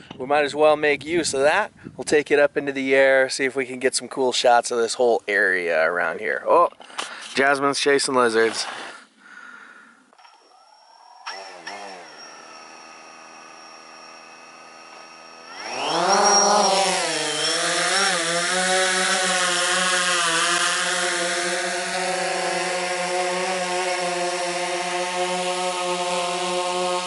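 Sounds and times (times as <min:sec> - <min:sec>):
drone motors buzzing: 0:10.1 - 0:27.0.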